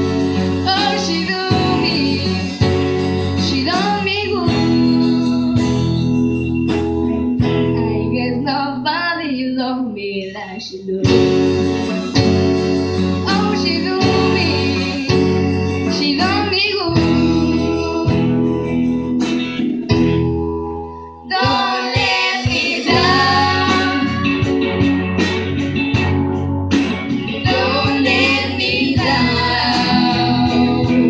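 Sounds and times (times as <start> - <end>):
person singing: 0.6 - 2.7, 13.3 - 18.7, 21.3 - 24.6, 27.4 - 31.0.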